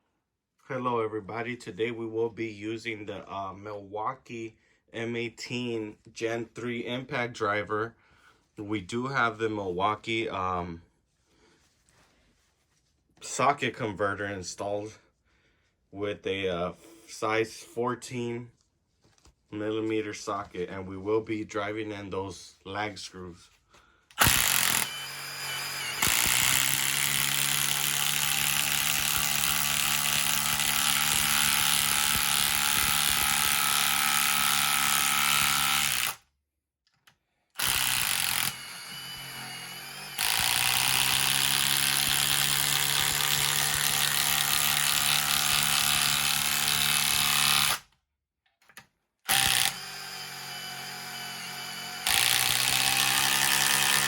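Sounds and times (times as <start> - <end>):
impact driver hammering screws: 24.2 - 36.2, 37.6 - 47.8, 49.3 - 54.0.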